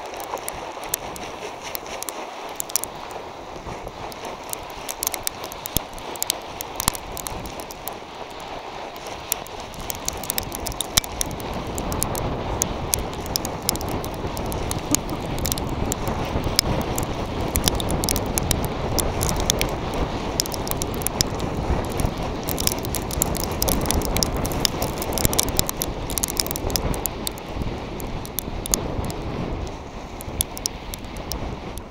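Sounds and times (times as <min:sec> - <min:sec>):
grit and pebbles ticking: 0:00.0 - 0:31.9
wind on microphone: 0:00.0 - 0:31.9.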